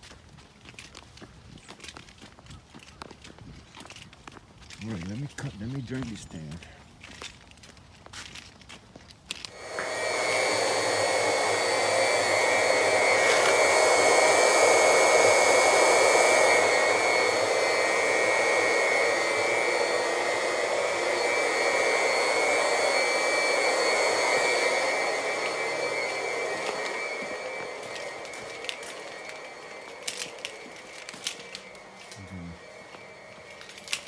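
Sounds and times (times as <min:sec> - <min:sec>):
small electric motor whining: 0:09.3 - 0:34.0.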